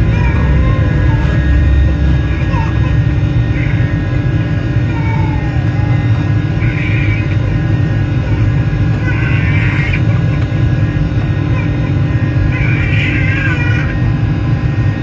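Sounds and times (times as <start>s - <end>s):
aircraft cabin drone: 0.0s - 15.0s.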